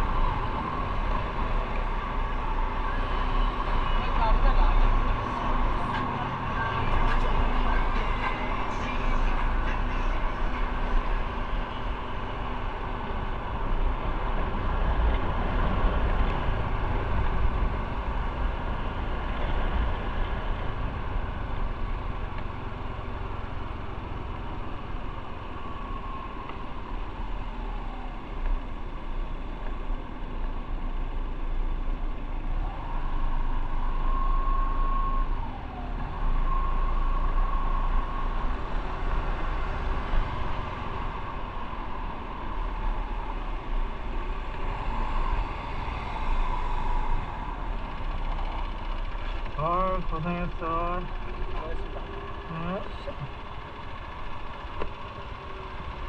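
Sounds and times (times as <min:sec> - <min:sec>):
engine whine: 0:00.0 - 0:56.0
motorcycle engine: 0:47.5 - 0:56.0.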